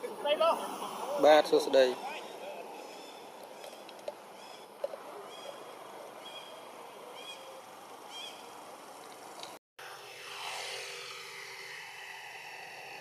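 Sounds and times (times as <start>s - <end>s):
outdoor background hiss: 0.0s - 13.0s
bird chirping: 2.2s - 8.6s.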